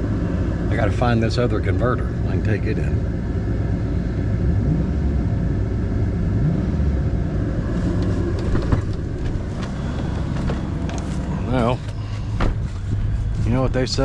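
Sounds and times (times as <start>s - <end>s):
truck engine idling: 7.4s - 14.0s.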